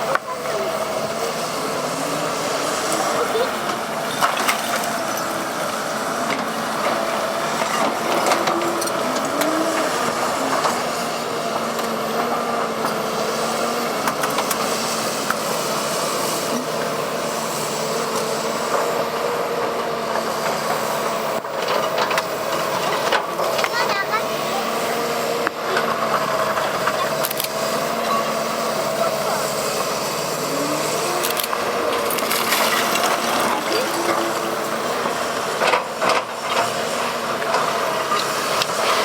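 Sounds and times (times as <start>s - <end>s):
excavator running: 0.0s - 39.0s.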